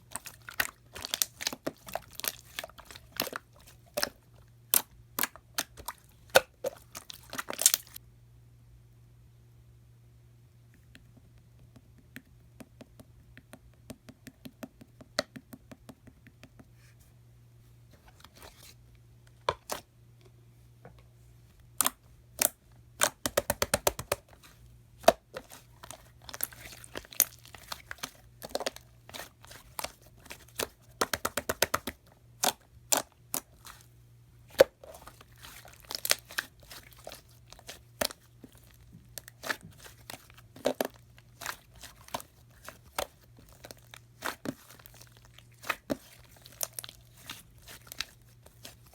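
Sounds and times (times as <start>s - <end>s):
slime squished by hand: 0.0s - 8.0s, 21.8s - 33.9s, 34.5s - 48.9s.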